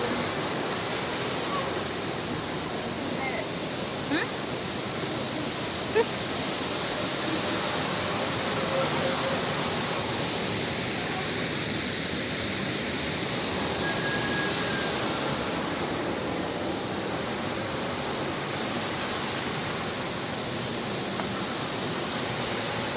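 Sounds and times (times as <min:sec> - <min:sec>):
steady rushing noise: 0:00.0 - 0:22.9
thin whistle: 0:13.4 - 0:15.3.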